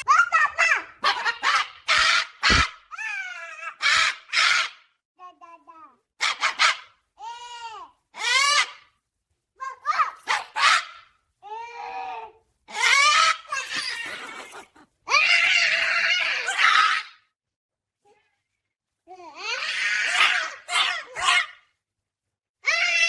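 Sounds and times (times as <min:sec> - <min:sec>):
parrot squawking: 0:00.6 - 0:03.1.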